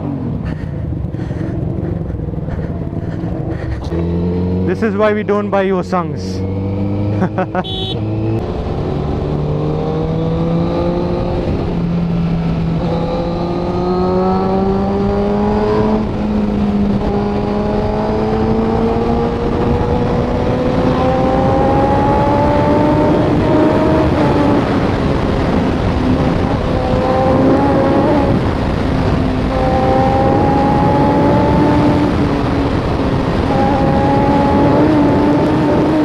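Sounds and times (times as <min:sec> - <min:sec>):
motorcycle engine revving: 0:00.0 - 0:36.0
wind rush: 0:08.3 - 0:36.0.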